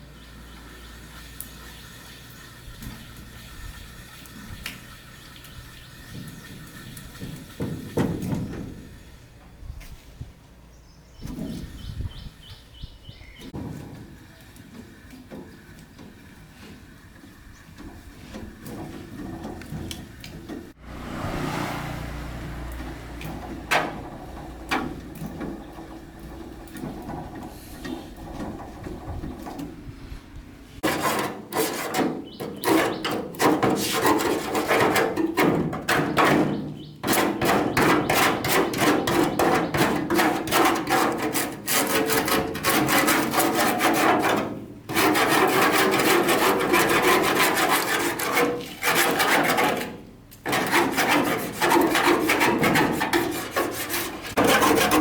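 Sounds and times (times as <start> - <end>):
hand tool rasping back and forth: 30.8 - 35.0, 37.0 - 55.0.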